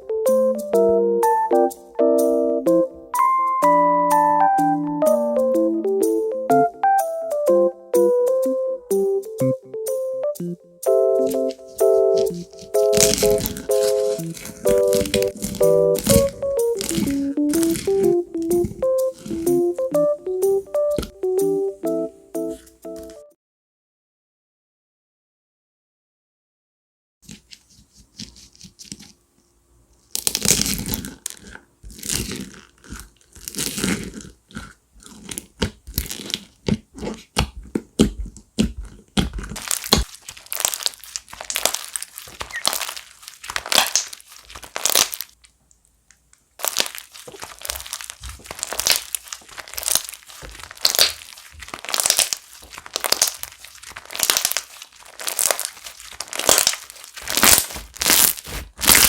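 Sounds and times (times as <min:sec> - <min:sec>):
slime squished by hand: 0:11.2 - 0:19.7, 0:30.1 - 0:45.4, 0:46.6 - 0:59.0.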